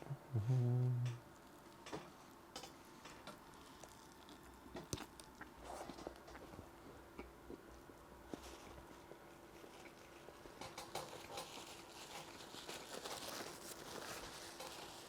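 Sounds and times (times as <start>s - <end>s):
person chewing: 3.3s - 6.6s.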